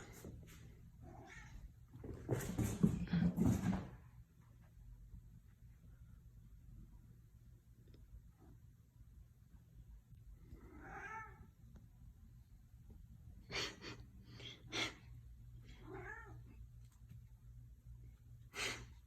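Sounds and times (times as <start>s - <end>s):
cat meowing: 1.0s - 1.6s, 15.8s - 16.4s.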